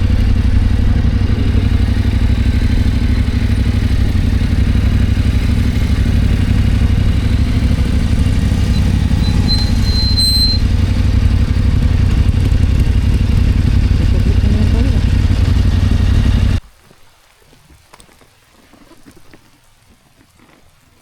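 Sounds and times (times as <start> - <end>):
faint rushing: 0.0 - 16.6
motorcycle engine rumble: 0.0 - 16.6
thin high whistle: 8.4 - 10.7.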